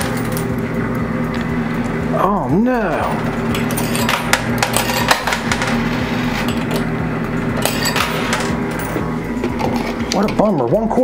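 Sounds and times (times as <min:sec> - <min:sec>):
coins clinking and clattering: 0:00.0 - 0:00.6, 0:03.2 - 0:10.0
machine humming: 0:00.0 - 0:11.0.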